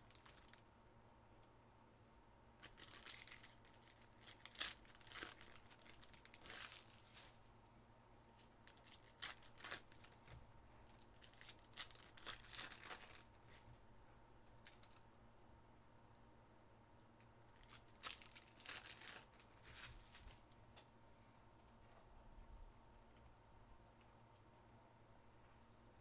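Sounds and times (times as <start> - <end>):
card pack wrappers tearing and crinkling: 0.0 - 0.6, 2.6 - 7.3, 8.4 - 10.2, 10.9 - 13.6, 17.5 - 20.4.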